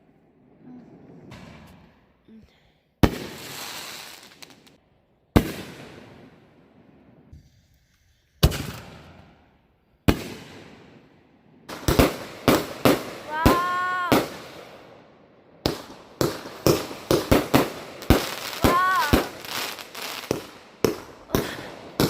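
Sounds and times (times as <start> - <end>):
fireworks bangs: 0.0 - 2.2, 3.0 - 7.6, 8.4 - 15.0, 15.6 - 22.0.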